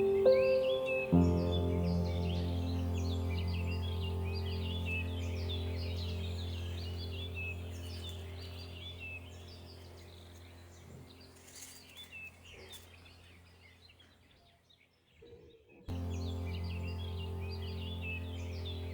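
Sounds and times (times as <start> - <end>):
small birds chirping: 0.0 - 18.9
steady low hum: 1.1 - 12.4, 15.9 - 18.9.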